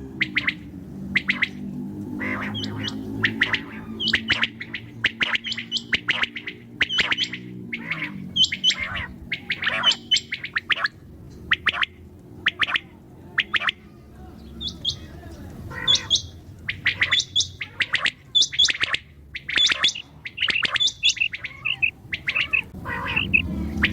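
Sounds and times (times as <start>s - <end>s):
low steady hum: 0.0s - 23.9s
quail chirping: 0.0s - 23.9s.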